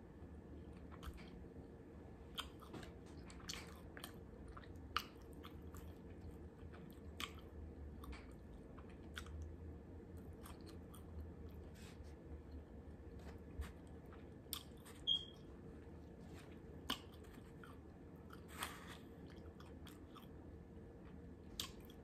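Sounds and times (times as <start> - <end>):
person chewing and biting food: 0.6 - 1.4, 2.3 - 9.5, 10.1 - 11.8, 13.2 - 15.4, 16.0 - 20.4, 21.0 - 22.0.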